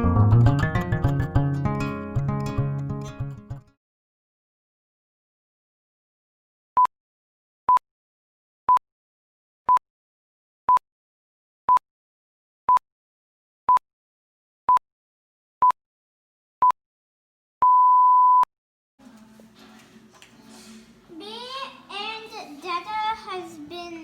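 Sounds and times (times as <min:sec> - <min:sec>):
short electronic beeps: 0:17.6 - 0:18.5.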